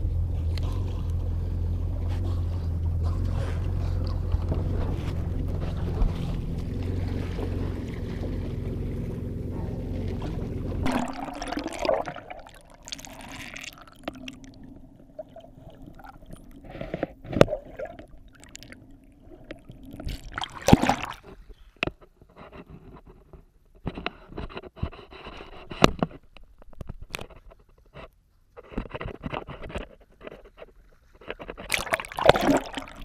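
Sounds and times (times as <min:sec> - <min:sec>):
boat engine running: 0:00.0 - 0:21.5
water lapping and sloshing: 0:00.2 - 0:21.8, 0:30.2 - 0:33.0
sharp knocks or splashes: 0:04.6 - 0:14.4, 0:19.5 - 0:21.4, 0:31.6 - 0:33.0
rushing water: 0:04.6 - 0:21.4, 0:31.7 - 0:33.0.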